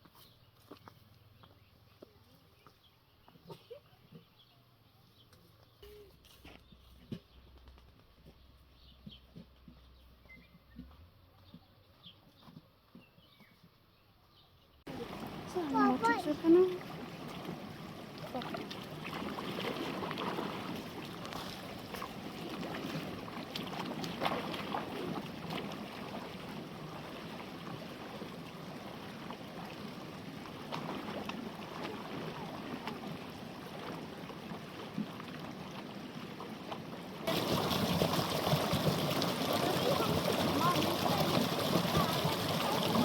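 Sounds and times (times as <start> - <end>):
running water: 14.9 - 43.0
small splashes and clicks: 14.9 - 43.0.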